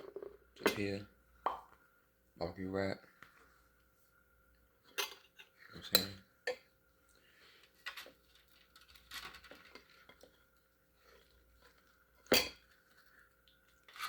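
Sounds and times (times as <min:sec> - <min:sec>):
cutlery and dishes clinking: 0:04.9 - 0:06.6.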